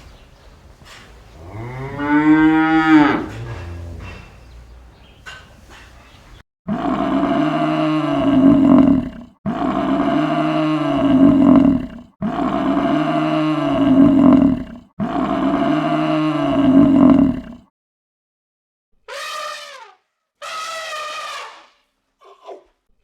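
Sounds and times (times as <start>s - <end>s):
buffalo bellowing: 0.9s - 5.1s.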